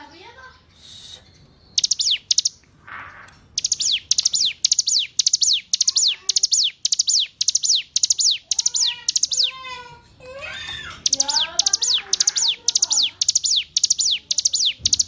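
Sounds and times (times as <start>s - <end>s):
bird singing sharp whistles: 0.8s - 2.6s, 3.6s - 9.5s, 11.2s - 15.0s.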